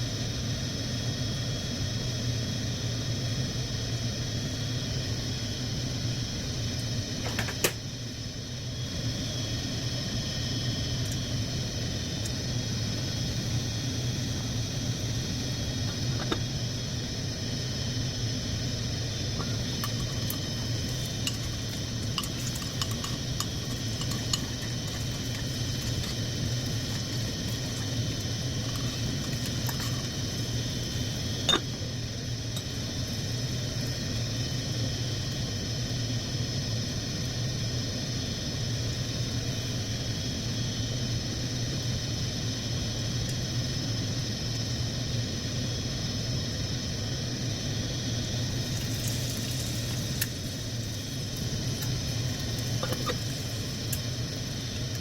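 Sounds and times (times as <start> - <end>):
steady low hum: 0.0 - 55.0
egg sizzling and popping: 19.1 - 34.6, 48.4 - 55.0.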